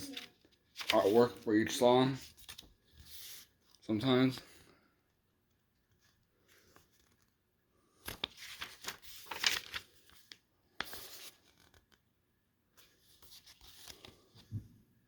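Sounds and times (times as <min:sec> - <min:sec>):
paper pages rustling: 0:00.0 - 0:03.8, 0:05.9 - 0:12.0, 0:12.8 - 0:14.6.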